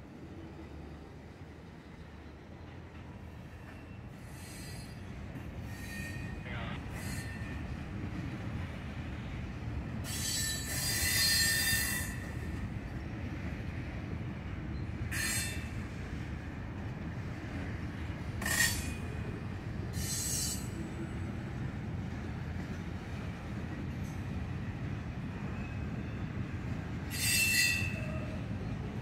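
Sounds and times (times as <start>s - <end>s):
freight cars rumbling on rails: 0.0s - 29.0s
high-pitched wheel squeals: 3.5s - 7.6s, 10.0s - 12.4s, 15.1s - 15.8s, 19.9s - 20.9s, 27.1s - 28.4s.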